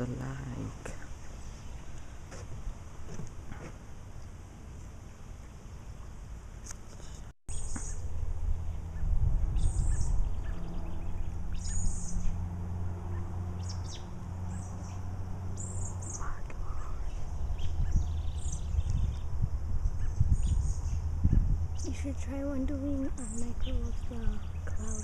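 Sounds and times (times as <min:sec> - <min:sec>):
wild birds chirping: 0:00.0 - 0:04.2, 0:05.0 - 0:25.0
steady low rumble: 0:07.5 - 0:25.0.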